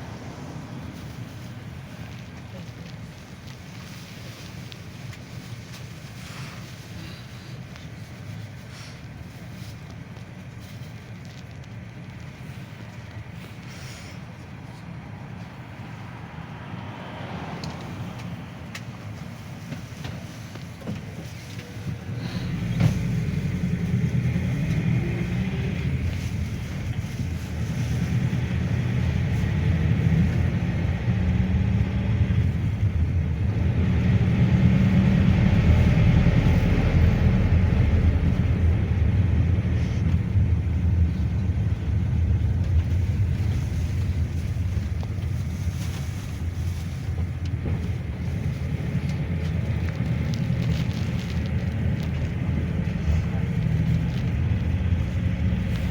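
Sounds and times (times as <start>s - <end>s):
minibus engine and road rumble: 0.0s - 55.9s.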